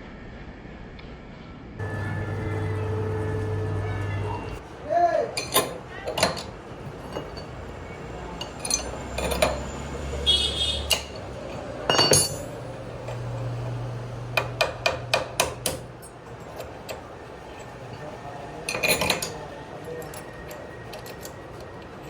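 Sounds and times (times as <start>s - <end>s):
hard objects clinking and knocking: 5.4s - 22.0s.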